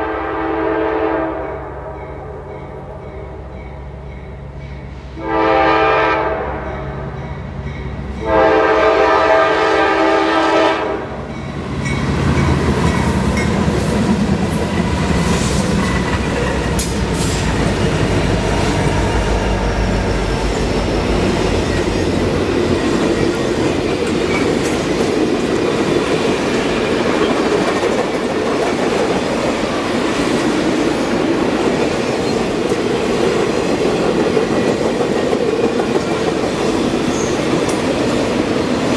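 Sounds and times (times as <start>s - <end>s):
locomotive air horn blasts: 0.0s - 1.6s, 5.1s - 6.8s, 8.2s - 11.2s
train cars clattering on rails: 11.3s - 38.9s.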